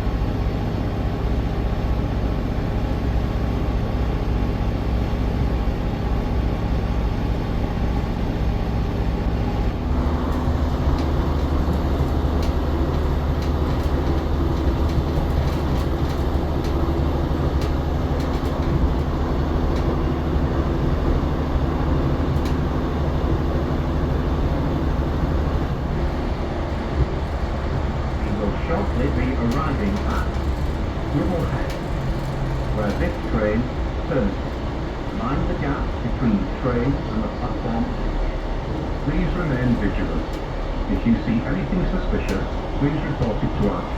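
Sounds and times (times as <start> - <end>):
diesel train engine drone: 0.0 - 43.9
rail noise: 0.0 - 43.9
light clicks from track: 17.6 - 19.1, 22.3 - 22.6, 27.0 - 33.7, 42.2 - 43.8.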